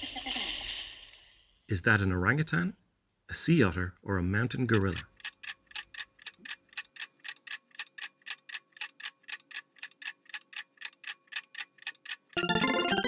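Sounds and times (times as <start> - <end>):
clock ticking: 4.6 - 13.0
bright chiming jingle: 12.4 - 13.0.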